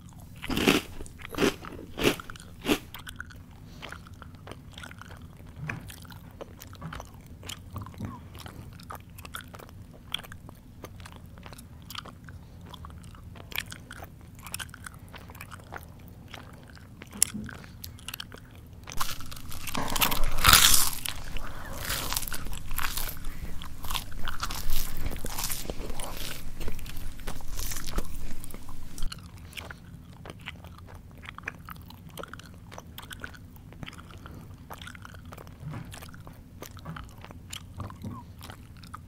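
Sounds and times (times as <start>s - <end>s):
crunching of crisp food: 0.0s - 39.0s
mouth chewing with wet clicks: 0.0s - 39.0s.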